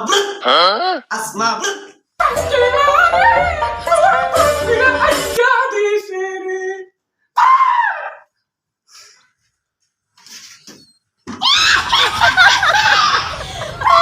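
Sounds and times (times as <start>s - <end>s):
person singing or wailing: 0.0s - 1.9s.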